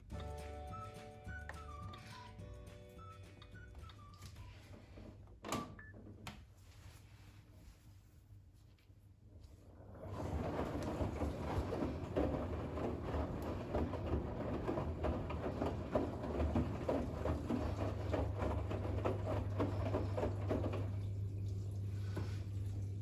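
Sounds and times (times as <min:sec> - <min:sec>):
washing machine drum sloshing: 0:09.9 - 0:23.0.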